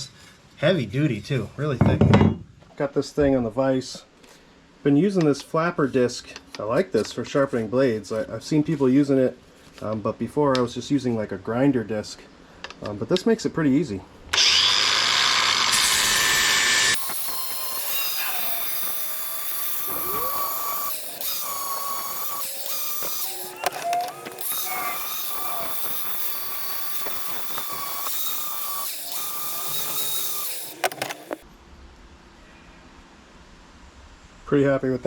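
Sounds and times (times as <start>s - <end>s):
angle grinder grinding metal: 14.4s - 31.4s.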